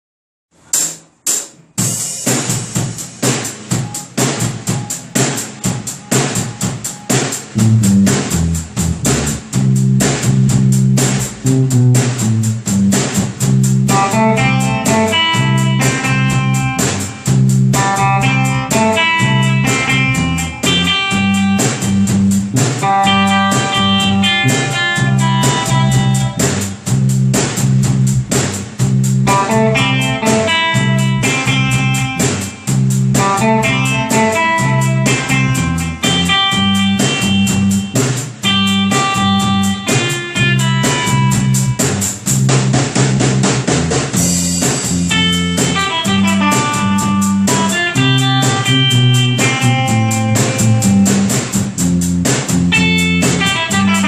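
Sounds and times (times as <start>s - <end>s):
drums: 0.5s - 54.0s
bass line: 2.8s - 54.0s
picked guitar melody: 13.9s - 26.9s, 29.2s - 41.9s, 45.1s - 51.5s, 52.7s - 54.0s.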